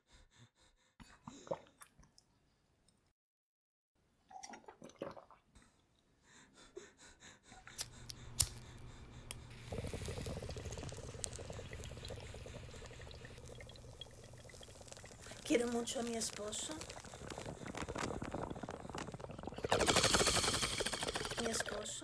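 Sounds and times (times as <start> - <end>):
water bubbling in a bong: 4.3 - 5.5, 9.5 - 22.0.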